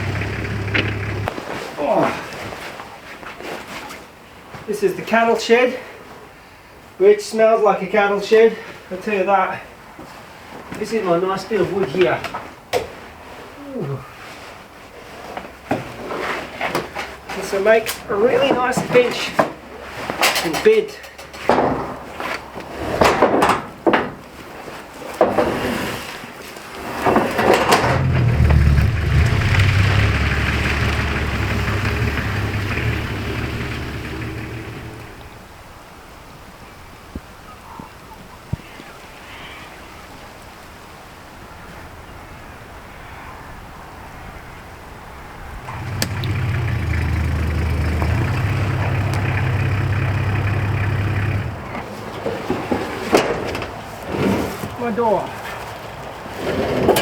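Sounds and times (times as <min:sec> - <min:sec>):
low engine rumble: 0:00.0 - 0:01.3, 0:27.6 - 0:35.5, 0:45.4 - 0:52.0.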